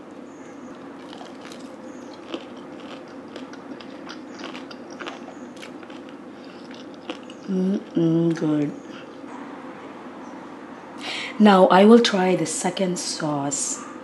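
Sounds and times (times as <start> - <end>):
steady low hum: 0.0 - 14.0
person chewing crispy fried chicken: 0.7 - 7.5.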